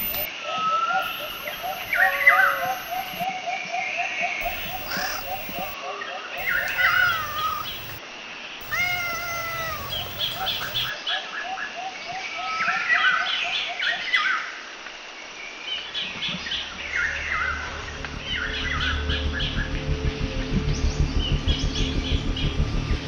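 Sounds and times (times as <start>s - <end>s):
songbirds chirping and singing: 0.9s - 3.8s, 4.4s - 8.0s, 8.6s - 11.0s
faint low rumble: 17.4s - 23.0s.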